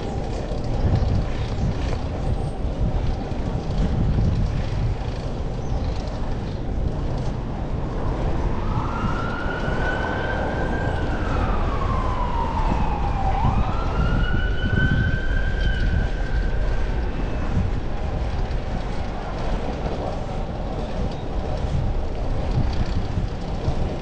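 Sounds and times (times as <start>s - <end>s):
low wind: 0.0s - 24.0s
road rumble: 0.0s - 24.0s
emergency vehicle siren wailing: 7.9s - 17.9s.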